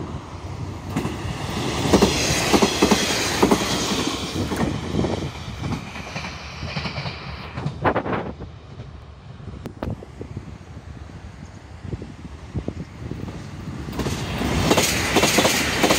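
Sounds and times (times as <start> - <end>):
train wheels clacking over rail joints: 0.9 - 4.8, 5.6 - 8.9, 13.9 - 15.9.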